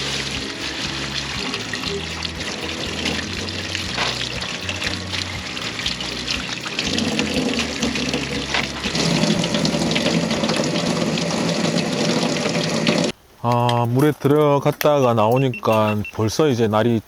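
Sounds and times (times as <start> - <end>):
water running from a tap: 0.0 - 13.1.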